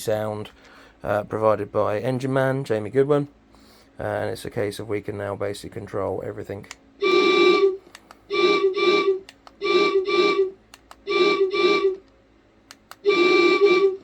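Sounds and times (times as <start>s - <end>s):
locomotive horn blasts: 7.0s - 12.0s, 13.0s - 14.0s.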